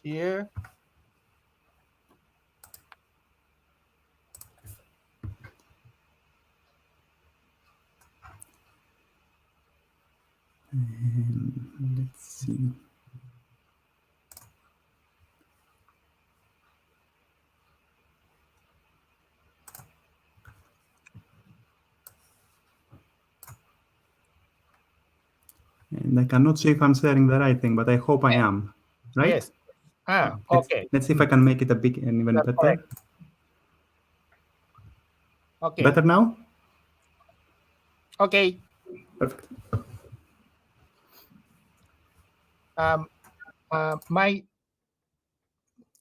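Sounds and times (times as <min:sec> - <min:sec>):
mouse and keyboard clicking: 0:02.6 - 0:03.0, 0:04.3 - 0:04.8, 0:14.3 - 0:14.6, 0:19.6 - 0:21.1, 0:23.4 - 0:23.7
computer mouse and keyboard clicks: 0:02.6 - 0:03.1, 0:04.3 - 0:05.8, 0:07.6 - 0:08.8, 0:14.3 - 0:14.7, 0:19.6 - 0:21.3, 0:22.0 - 0:22.6, 0:23.4 - 0:23.7, 0:32.8 - 0:33.2.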